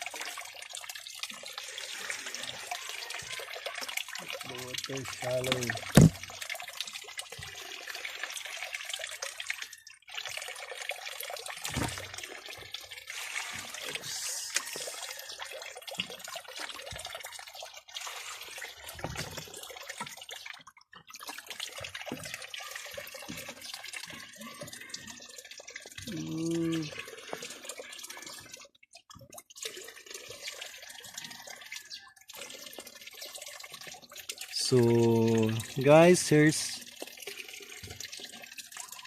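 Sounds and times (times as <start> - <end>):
water splashing and trickling: 0.0 - 39.0
low knocks against container: 5.9 - 6.2.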